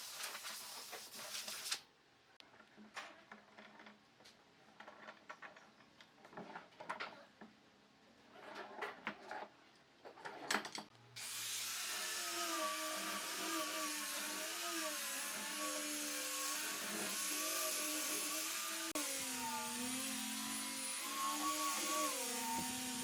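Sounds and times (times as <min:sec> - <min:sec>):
power tool motor whine: 0:11.2 - 0:23.0.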